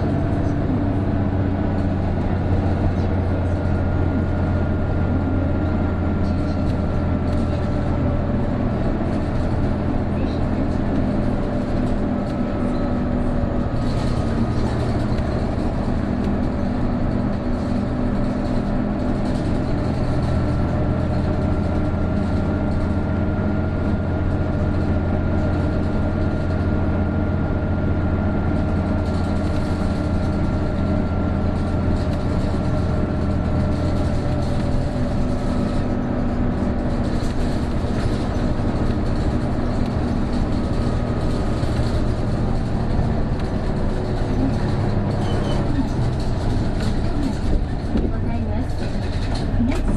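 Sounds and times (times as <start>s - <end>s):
bus engine droning: 0.0s - 49.9s.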